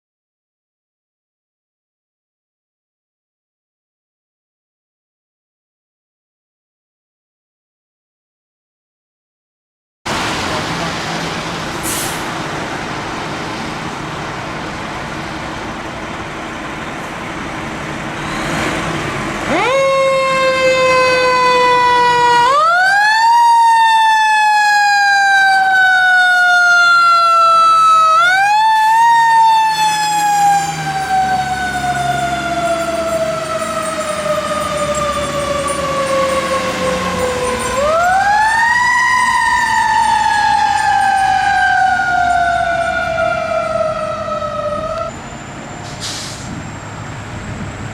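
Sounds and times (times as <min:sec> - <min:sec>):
fire truck engine and road noise: 0:10.1 - 0:47.9
siren sweeping: 0:19.4 - 0:45.8.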